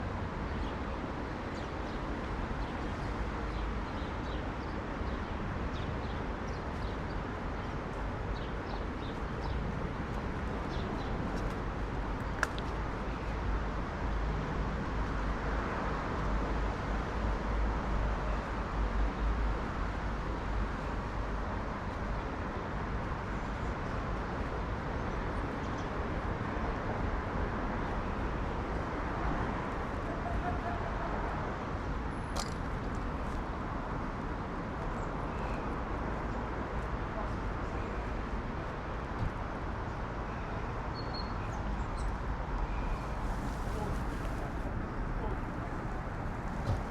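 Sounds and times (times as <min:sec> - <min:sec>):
low rumble of traffic: 0:00.0 - 0:46.9
sharp click: 0:32.4 - 0:32.7.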